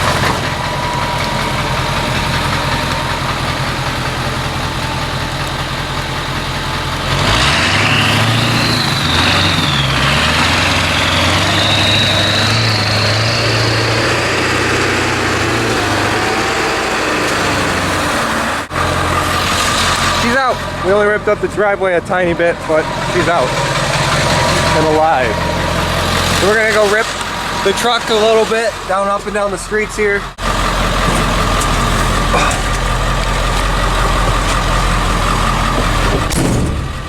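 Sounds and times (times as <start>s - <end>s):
diesel truck engine: 0.0s - 37.0s
turbo whistle: 7.6s - 14.4s.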